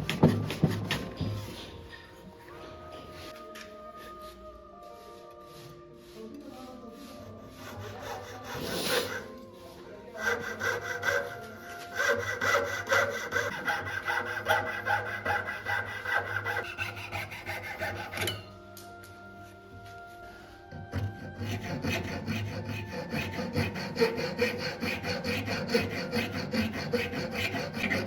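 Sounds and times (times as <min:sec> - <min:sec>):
hand file rasping on wood: 0:00.0 - 0:01.3, 0:07.0 - 0:09.4, 0:10.1 - 0:18.4, 0:20.7 - 0:28.0.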